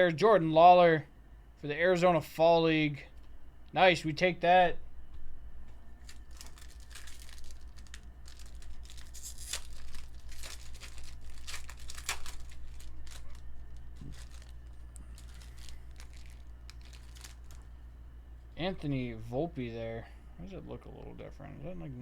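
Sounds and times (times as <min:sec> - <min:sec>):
foil wrapper tearing and crinkling: 0:06.0 - 0:17.7.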